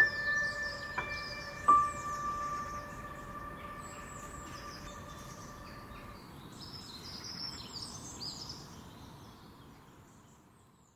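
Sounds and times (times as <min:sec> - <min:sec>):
held musical notes: 0:00.0 - 0:06.3
birds chirping: 0:00.0 - 0:09.5
low outdoor ambience: 0:00.0 - 0:10.9.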